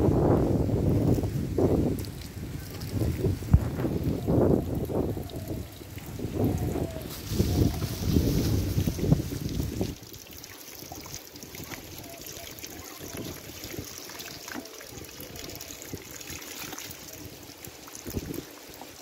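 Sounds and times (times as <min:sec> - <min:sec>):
water trickling: 0:00.8 - 0:19.0.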